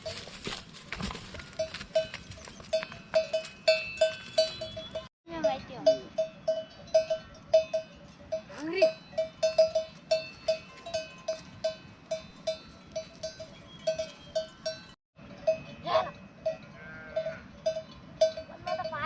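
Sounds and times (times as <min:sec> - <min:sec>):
animal bells clanking: 0:00.0 - 0:19.0
animal bleating: 0:16.8 - 0:17.5.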